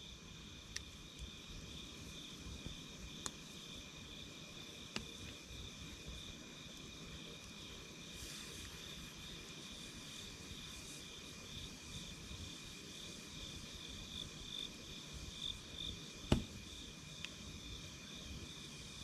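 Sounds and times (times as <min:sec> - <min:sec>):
night insects calling: 0:00.0 - 0:19.0
wood fire hiss: 0:00.0 - 0:19.0
campfire pop: 0:02.5 - 0:03.5, 0:04.9 - 0:06.2, 0:16.2 - 0:17.4.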